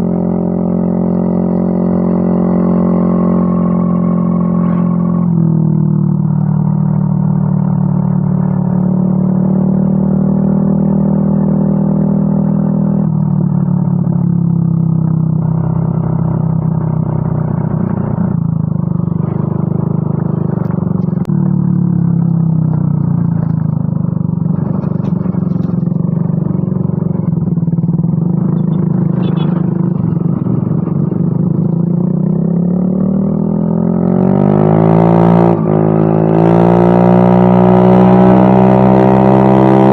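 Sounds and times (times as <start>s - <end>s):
scooter engine revving: 15.5s - 39.9s
scooter engine idling: 15.8s - 31.9s.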